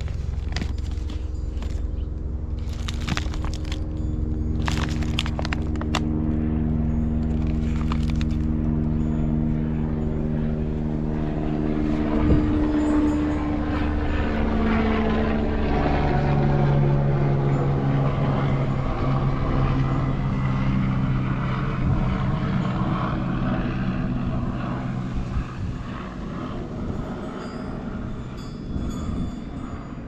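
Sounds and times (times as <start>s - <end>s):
vehicle engine humming: 0.0s - 15.7s.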